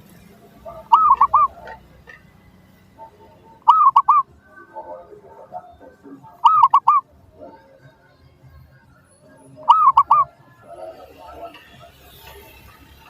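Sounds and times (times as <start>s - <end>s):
dove cooing: 0.0s - 7.9s, 9.6s - 11.9s.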